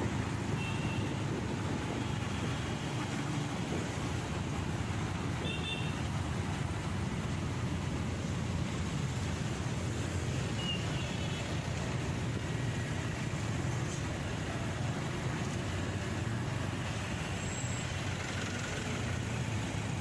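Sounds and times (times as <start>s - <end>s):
motorcycle engine and road rumble: 0.0s - 20.0s
traffic: 0.0s - 20.0s.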